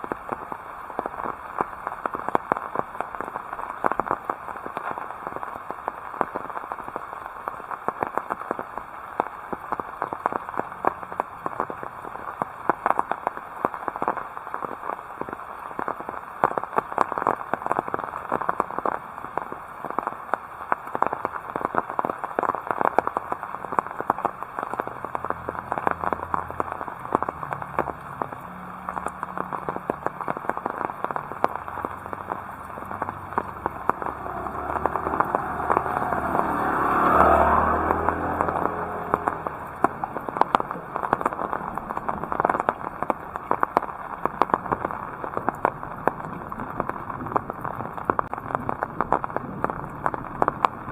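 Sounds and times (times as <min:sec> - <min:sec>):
heavy rain: 0:00.0 - 0:50.9
low hum: 0:31.3 - 0:43.0.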